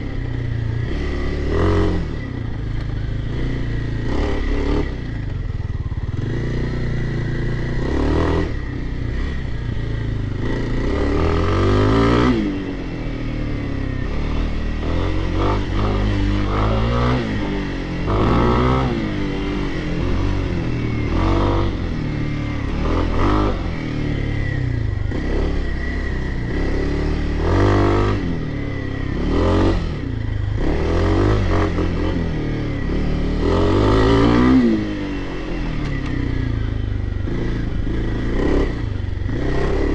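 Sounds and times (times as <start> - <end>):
dirt bike engine revving: 0.8 - 2.3, 3.3 - 5.0, 10.4 - 13.2, 13.8 - 36.0, 37.2 - 39.9.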